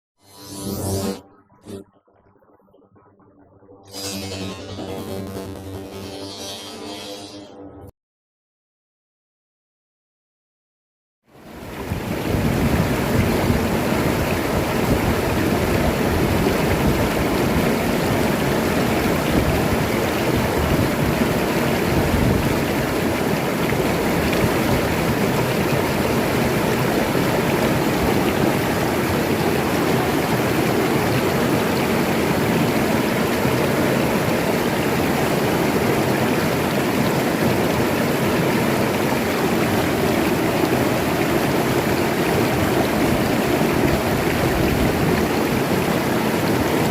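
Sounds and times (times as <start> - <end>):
river water rushing: 11.4 - 46.9.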